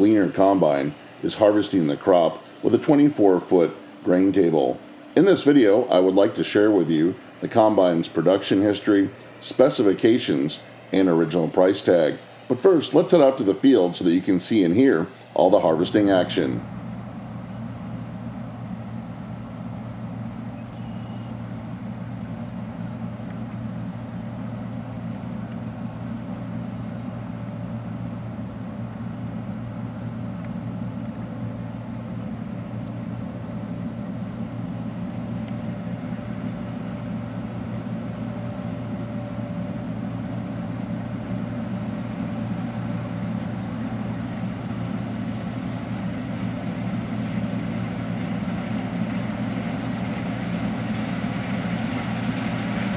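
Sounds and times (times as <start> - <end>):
combine harvester humming: 0.0 - 52.9.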